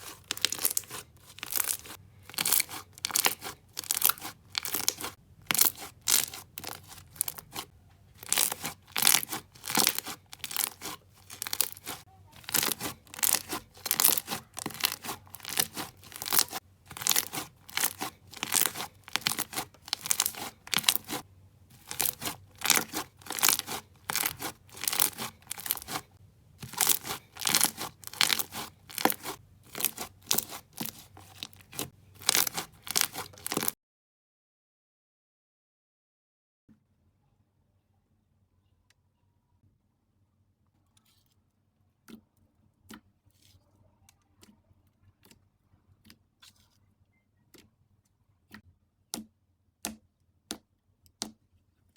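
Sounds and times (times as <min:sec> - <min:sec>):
slime squeezed by hand crackling: 0:00.0 - 0:33.8.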